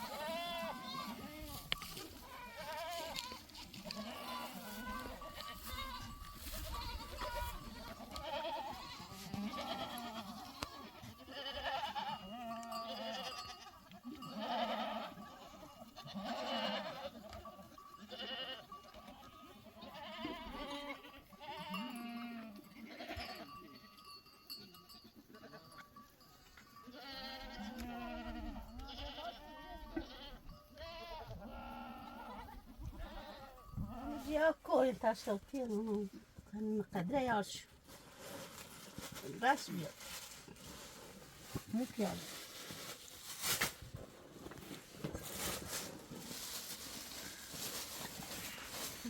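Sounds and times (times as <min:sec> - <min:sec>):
goats and sheep bleating: 0:00.0 - 0:34.9.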